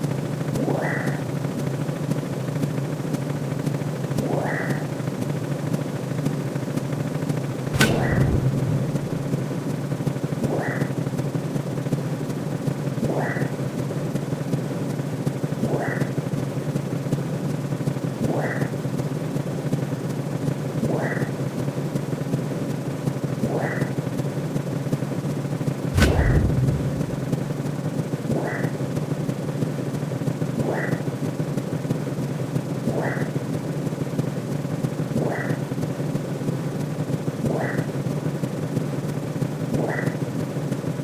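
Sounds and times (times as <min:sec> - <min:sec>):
deep cinematic bass hit: 0:07.8 - 0:10.0, 0:26.0 - 0:27.8
steady low synth hum: 0:07.8 - 0:10.0, 0:26.0 - 0:27.8
short rising swoosh: 0:26.0 - 0:27.7.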